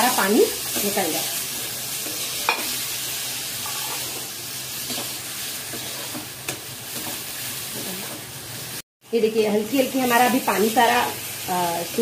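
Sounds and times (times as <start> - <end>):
vegetables sizzling in oil: 0.0 - 12.0
metal spoon scraping pan: 2.0 - 2.8, 3.6 - 6.2.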